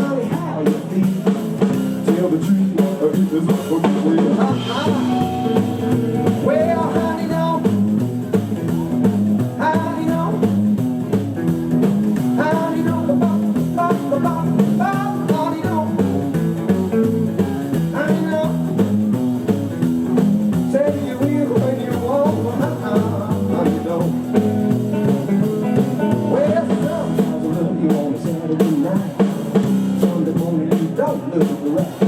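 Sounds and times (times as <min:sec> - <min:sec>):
bass line: 0:00.0 - 0:32.0
drums: 0:00.0 - 0:32.0
electric guitar: 0:00.0 - 0:32.0.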